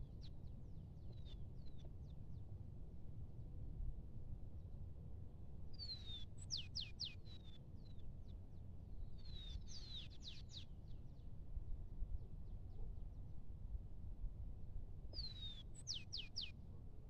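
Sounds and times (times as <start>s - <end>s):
bird singing whistled notes: 5.8s - 8.0s, 9.2s - 10.7s, 15.2s - 16.6s.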